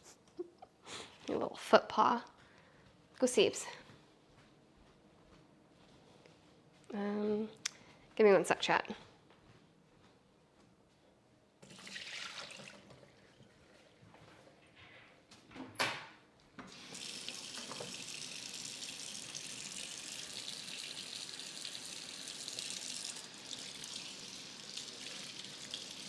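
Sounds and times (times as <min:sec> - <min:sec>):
water running into a sink: 0:11.6 - 0:13.6, 0:16.7 - 0:26.0.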